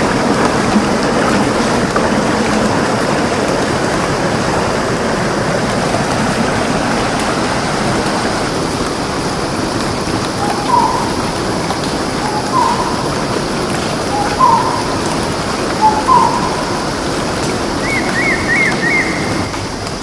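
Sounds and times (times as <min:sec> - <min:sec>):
running water: 0:00.0 - 0:20.0
bird calling: 0:10.0 - 0:19.8.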